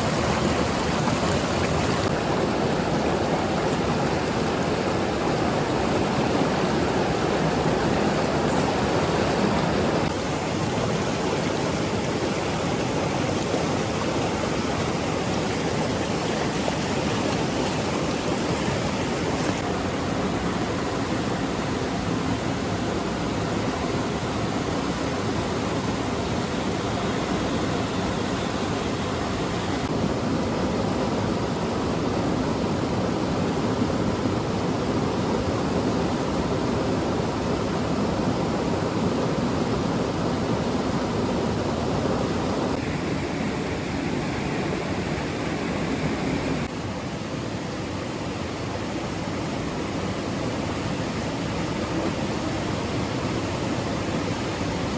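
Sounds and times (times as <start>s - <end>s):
water rushing: 0.0s - 54.9s.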